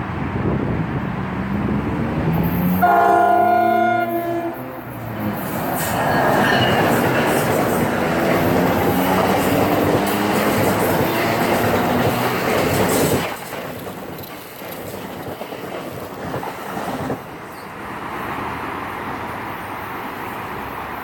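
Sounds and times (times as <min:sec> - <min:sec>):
train wheels clattering over rail joints: 0:05.0 - 0:17.8.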